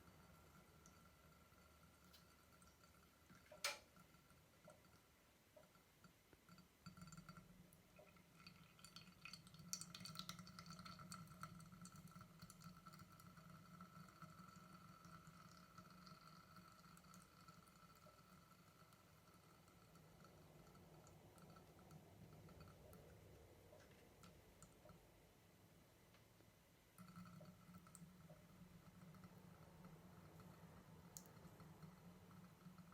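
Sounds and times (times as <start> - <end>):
faint crackles and clicks: 0.0 - 25.2, 26.0 - 32.9
faint steady hum: 0.0 - 32.9.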